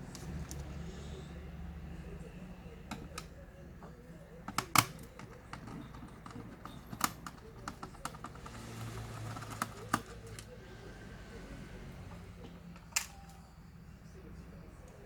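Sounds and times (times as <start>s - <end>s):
plastic and metal parts clicking: 4.5s - 8.5s.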